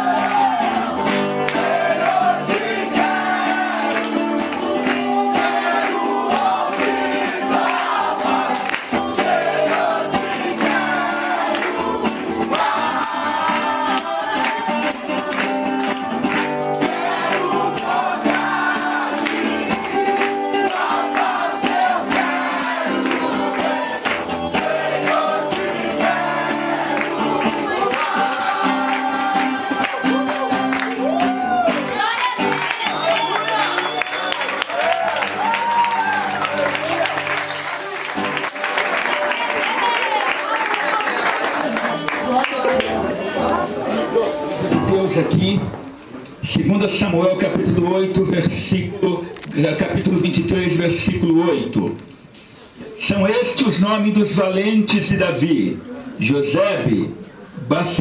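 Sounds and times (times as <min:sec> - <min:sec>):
group singing gospel with band: 0:00.0 - 0:38.4, 0:42.3 - 0:45.3
tambourine shaking: 0:00.0 - 0:40.6.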